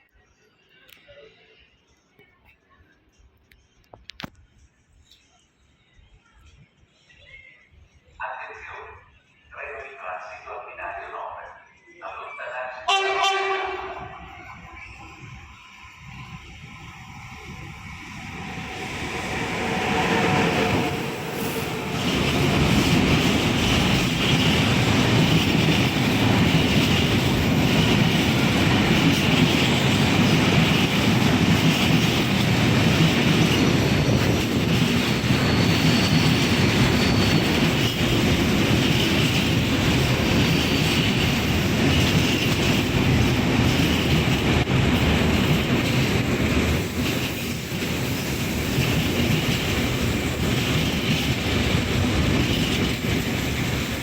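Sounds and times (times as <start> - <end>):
train wagons rumbling: 12.9 - 54.0
faint high wheel squeal: 35.0 - 38.0.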